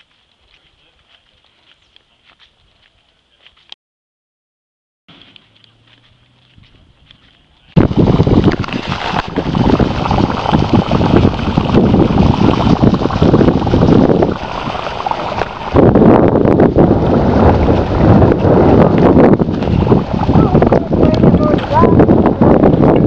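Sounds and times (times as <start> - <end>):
wind buffeting microphone: 6.5 - 23.0.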